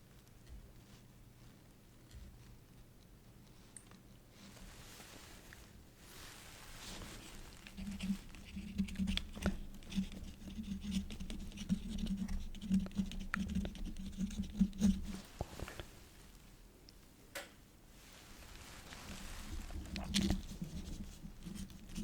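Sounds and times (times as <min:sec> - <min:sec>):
quill pen scratching on paper: 0:07.6 - 0:15.2, 0:19.7 - 0:22.0.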